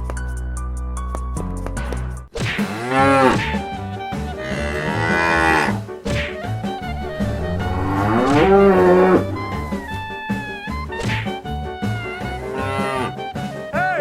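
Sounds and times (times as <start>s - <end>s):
cow mooing: 4.3s - 5.8s, 6.8s - 10.6s, 12.4s - 13.2s.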